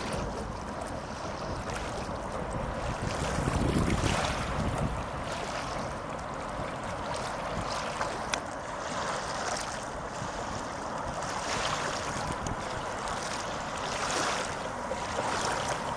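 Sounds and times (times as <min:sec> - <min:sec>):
wind noise: 0:02.4 - 0:05.9.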